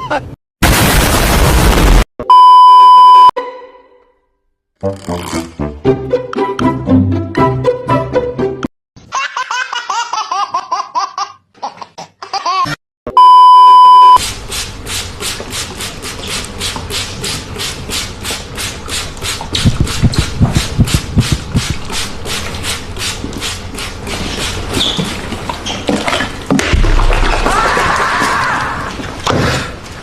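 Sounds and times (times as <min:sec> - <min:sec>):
loud steady beep: 0:02.3 - 0:03.3, 0:13.1 - 0:14.2
fast even pulsing noise: 0:19.6 - 0:21.9.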